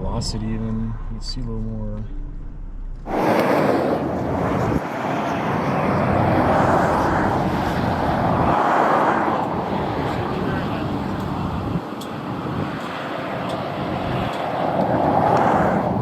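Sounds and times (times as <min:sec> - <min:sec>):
loud rushing air: 0:02.6 - 0:12.8.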